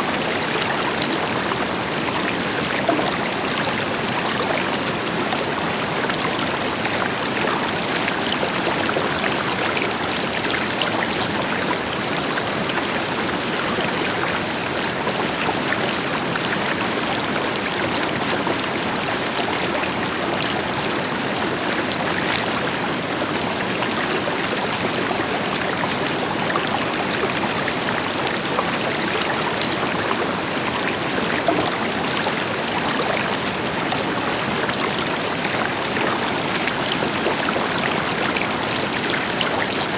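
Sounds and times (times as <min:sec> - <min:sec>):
river water splashing over rocks: 0:23.4 - 0:39.9.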